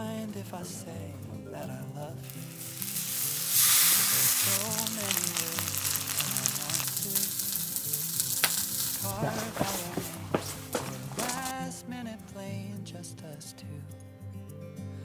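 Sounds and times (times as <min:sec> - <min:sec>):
food sizzling and spattering: 0:00.0 - 0:11.6.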